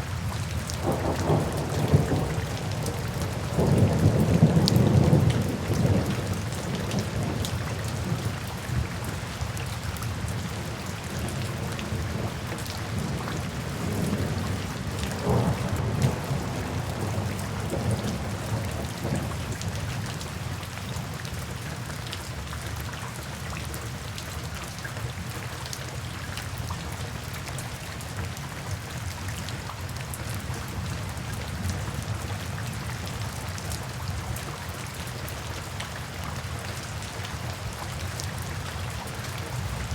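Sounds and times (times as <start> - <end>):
steady rain falling: 0.0 - 39.9
low rolls of thunder: 0.8 - 8.1, 12.9 - 19.6.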